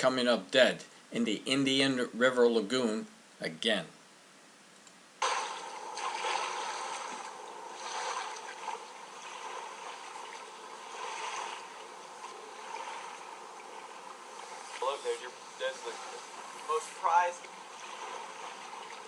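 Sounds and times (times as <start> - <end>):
rushing water: 5.2 - 19.0.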